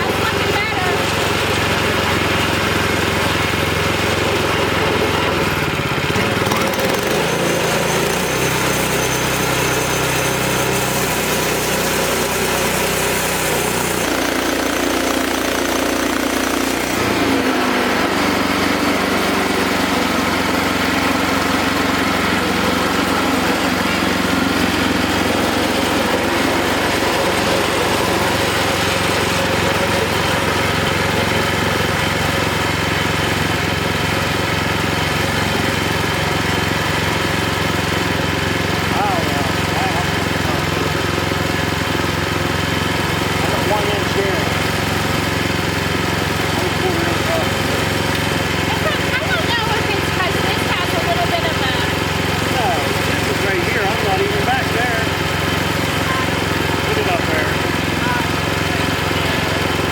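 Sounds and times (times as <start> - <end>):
sawmill engine running: 0.0 - 59.9.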